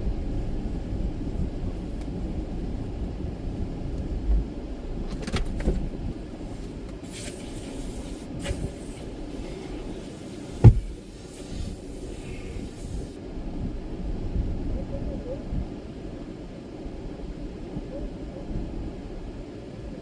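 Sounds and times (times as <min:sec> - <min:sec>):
car rumbling: 0:00.0 - 0:15.8
sharp thump: 0:10.6 - 0:10.9.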